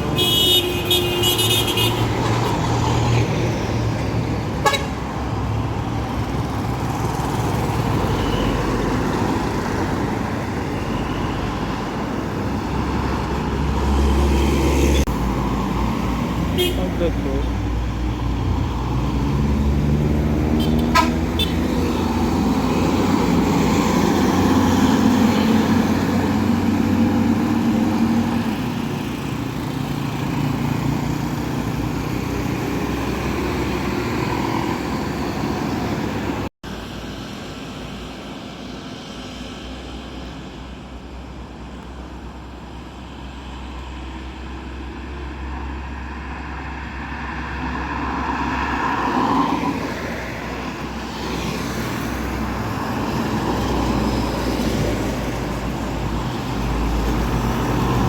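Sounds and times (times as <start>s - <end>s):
road traffic: 0.0s - 58.0s
vehicle horn honking: 0.2s - 2.1s, 4.6s - 5.0s, 16.6s - 17.0s, 20.6s - 21.6s.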